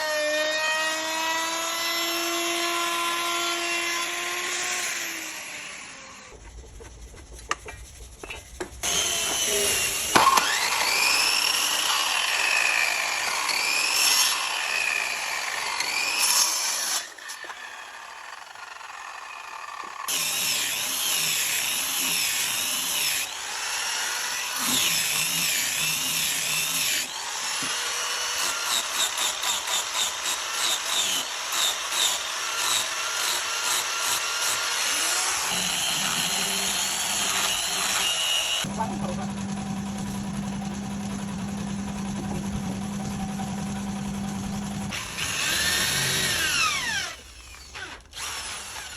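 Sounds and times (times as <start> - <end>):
power tool cutting or sanding wood: 0.0 - 6.5, 8.6 - 48.9
power tool motor running: 8.8 - 48.9.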